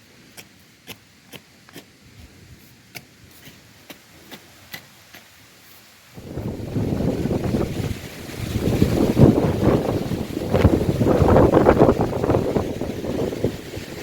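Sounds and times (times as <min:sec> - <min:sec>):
wind buffeting microphone: 0:06.2 - 0:14.0.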